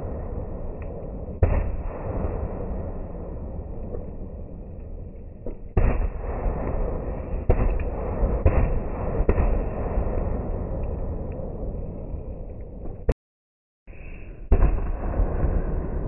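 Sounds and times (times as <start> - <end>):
fireworks banging: 5.4 - 11.8, 14.5 - 16.0.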